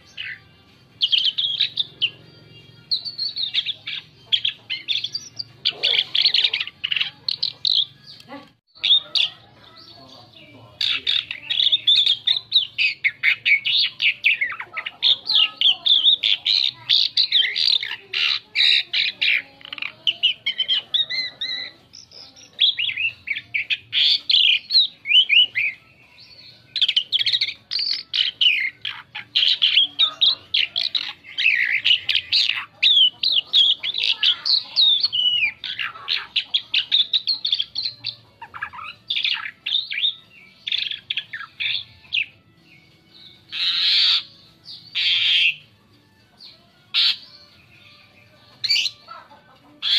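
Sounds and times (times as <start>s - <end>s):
bird singing chattering song: 0.0s - 49.9s.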